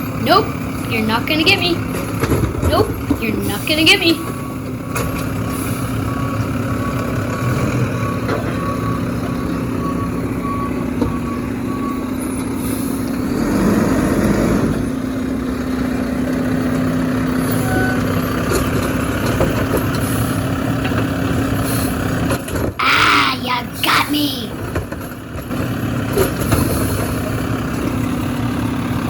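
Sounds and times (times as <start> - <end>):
garbage truck engine running: 0.0 - 29.0
reversing alarm beeping: 2.8 - 13.4, 17.3 - 18.4.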